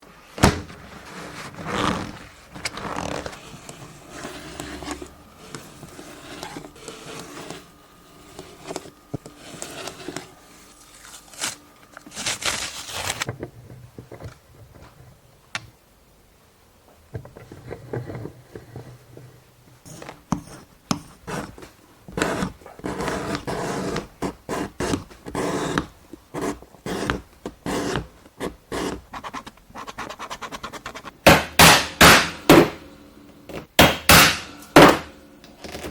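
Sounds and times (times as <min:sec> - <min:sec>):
leather tools scraping leather: 0:01.1 - 0:10.3.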